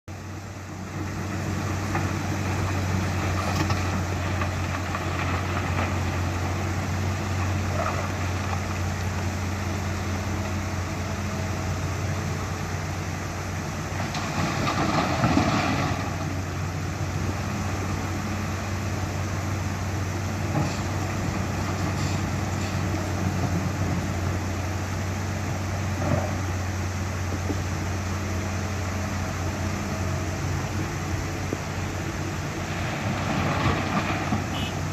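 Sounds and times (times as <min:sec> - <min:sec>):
excavator diesel engine humming: 0:00.1 - 0:34.9.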